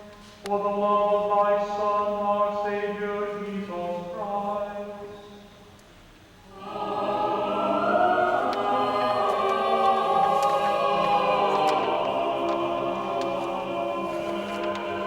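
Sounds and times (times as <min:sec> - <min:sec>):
choir singing a chord: 0:06.5 - 0:15.0.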